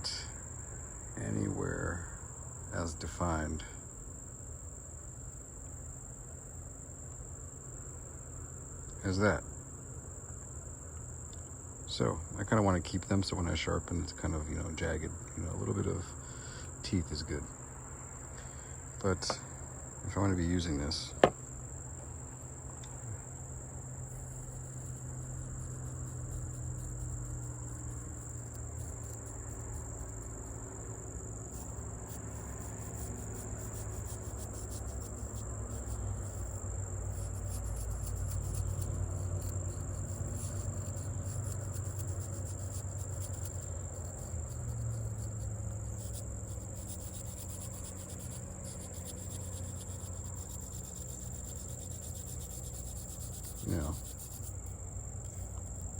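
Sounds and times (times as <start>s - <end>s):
crickets trilling: 0.0s - 55.9s
knife blade scratched with sand: 31.6s - 54.6s.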